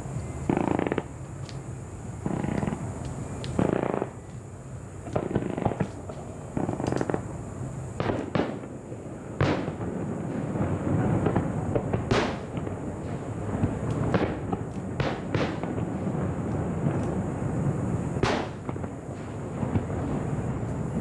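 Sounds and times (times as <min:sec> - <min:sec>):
fireworks bangs: 0:00.0 - 0:01.2, 0:02.2 - 0:04.3, 0:05.0 - 0:07.4, 0:08.0 - 0:21.0
fireworks crackling: 0:00.0 - 0:21.0.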